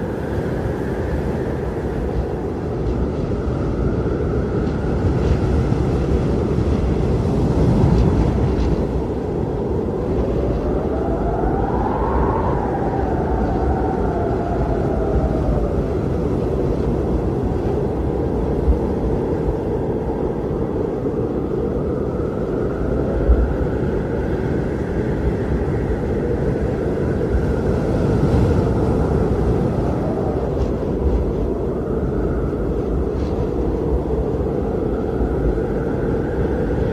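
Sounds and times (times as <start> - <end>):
howling blizzard wind: 0.0 - 36.9.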